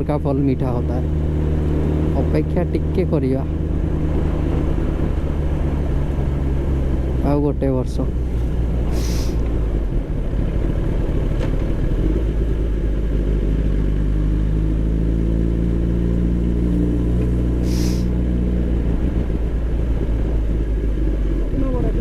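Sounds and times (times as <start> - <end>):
motorcycle engine running: 0.0 - 22.0
short hiss: 8.9 - 9.4, 17.6 - 18.1.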